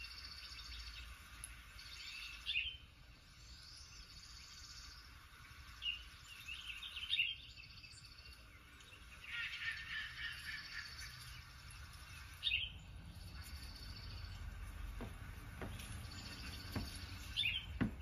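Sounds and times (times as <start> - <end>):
bird chirps: 0.0 - 18.0
faint outdoor background: 0.0 - 18.0
bird trills: 5.8 - 14.6.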